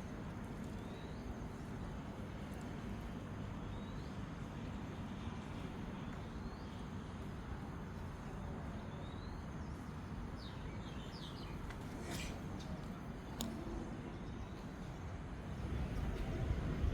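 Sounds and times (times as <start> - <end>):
low outdoor rumble: 0.0 - 16.9.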